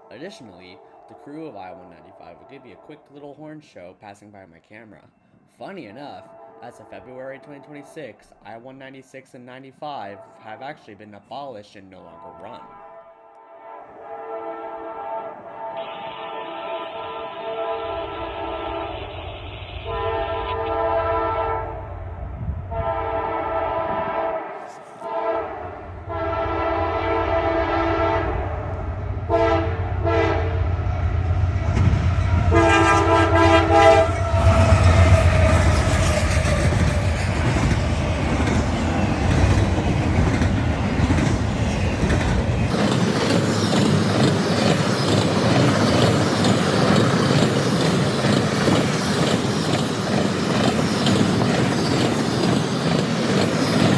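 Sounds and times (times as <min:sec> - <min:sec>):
locomotive air horn blasts: 0:12.2 - 0:19.2, 0:19.8 - 0:21.8, 0:22.7 - 0:28.4, 0:29.3 - 0:30.6, 0:32.4 - 0:36.8
train rumbling past: 0:17.0 - 0:53.9
wheels clacking on rails: 0:31.0 - 0:53.9.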